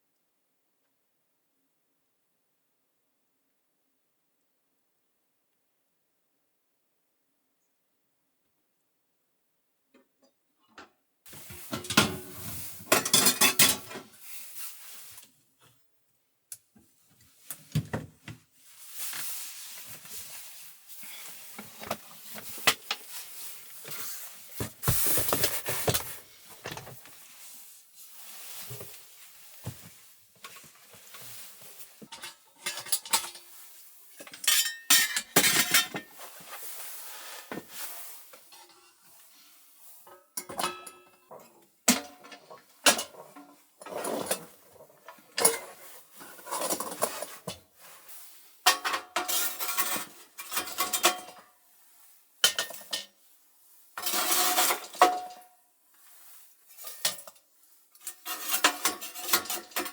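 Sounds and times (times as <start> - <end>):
dishes and cutlery clinking: 11.5 - 14.1, 32.1 - 33.5, 34.3 - 36.1, 40.4 - 43.3, 58.1 - 59.9.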